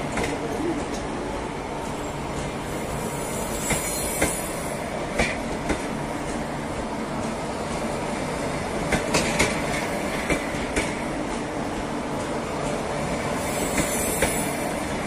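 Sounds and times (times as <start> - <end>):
train wheels rumbling on rail: 0.0 - 15.0
wheels clacking over rail joints: 8.5 - 12.8.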